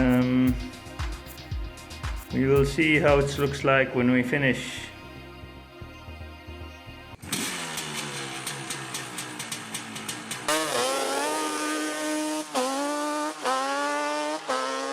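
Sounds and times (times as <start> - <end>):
motorcycle engine revving: 0.0 - 2.4, 7.2 - 14.9.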